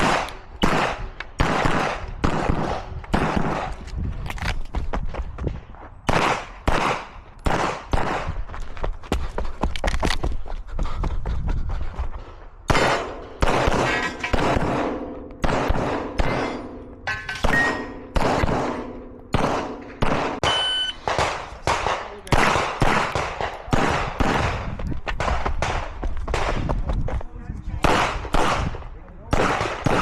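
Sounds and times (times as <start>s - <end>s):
pistol shots with echo: 0.0s - 3.8s, 6.1s - 8.4s, 12.7s - 26.6s, 27.8s - 30.0s.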